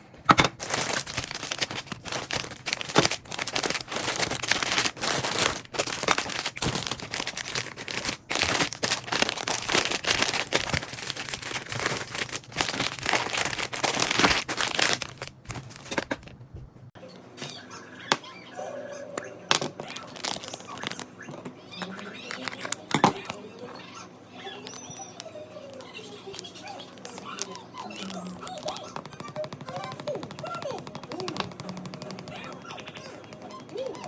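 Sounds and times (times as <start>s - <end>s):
plastic crinkling: 0.5s - 16.3s, 19.6s - 21.1s, 21.8s - 23.4s, 24.6s - 29.6s.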